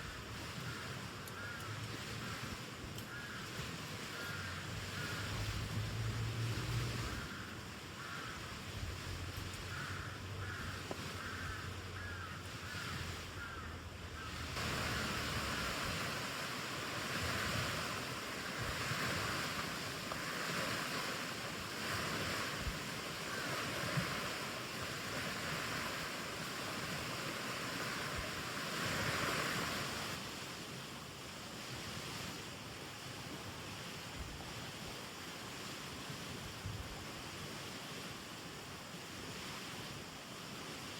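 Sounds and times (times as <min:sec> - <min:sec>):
wind rushing through trees: 0:00.0 - 0:40.9
faint ticks: 0:01.2 - 0:02.0, 0:02.9 - 0:03.6.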